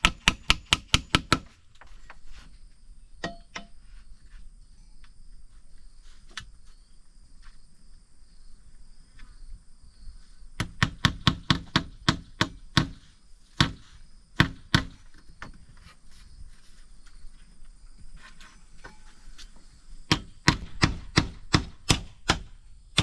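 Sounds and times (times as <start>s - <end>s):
chopping strikes on wood: 10.6s - 13.0s, 13.6s - 15.0s, 20.1s - 23.0s.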